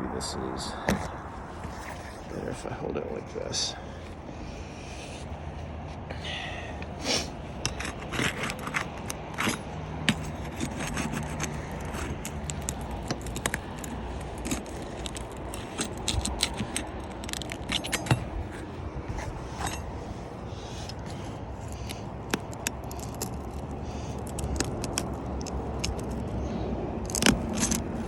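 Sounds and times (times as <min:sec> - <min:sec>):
roof shingle scraping and popping: 0:07.4 - 0:28.0.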